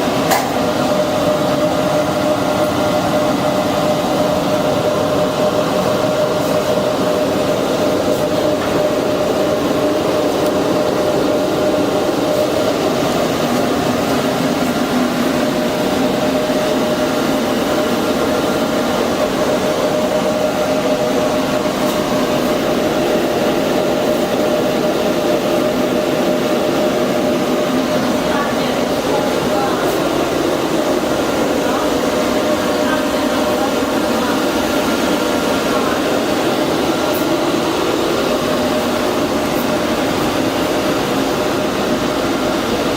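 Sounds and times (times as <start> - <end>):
air conditioner whooshing and humming: 0.0 - 42.9.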